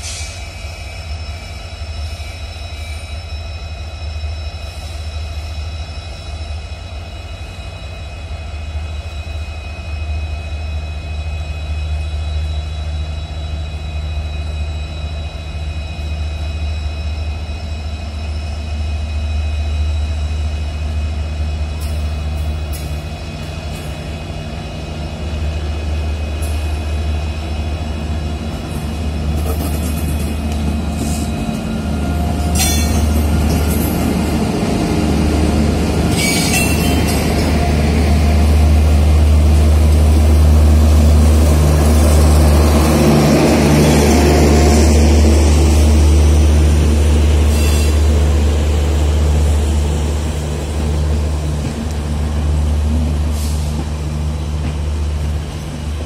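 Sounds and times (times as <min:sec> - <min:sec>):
electric locomotive rumble and hum: 0:00.0 - 0:56.0.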